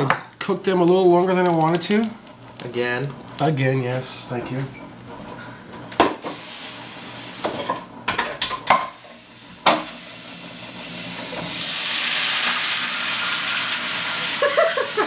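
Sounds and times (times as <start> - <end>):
food sizzling in a pan: 6.1 - 15.0.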